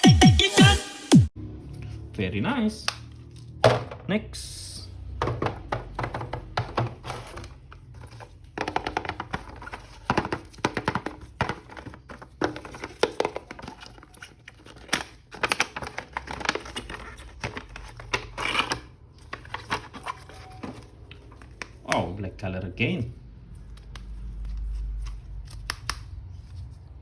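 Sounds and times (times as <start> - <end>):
plastic packaging crinkling: 7.0 - 21.8.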